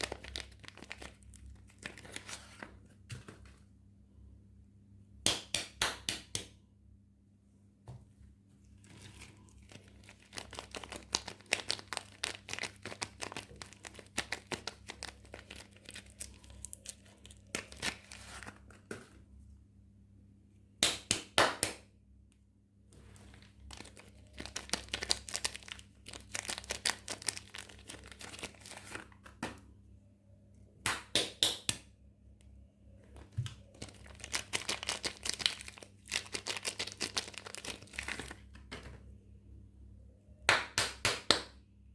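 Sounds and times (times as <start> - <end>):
wrapping crinkling and tearing: 0.0 - 2.8, 8.8 - 18.8, 23.0 - 29.3, 33.0 - 38.8.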